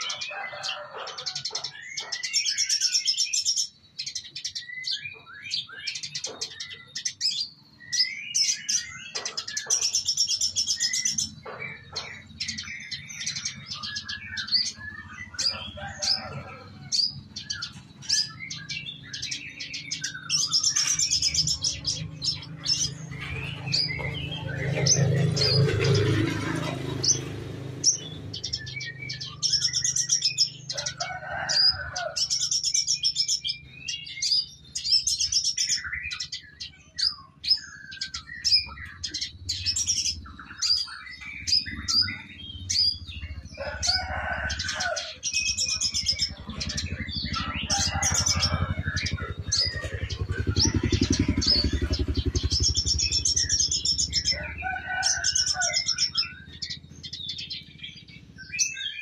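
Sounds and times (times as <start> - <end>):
canary singing trills: 0.0 - 59.0
low drone: 38.6 - 58.4.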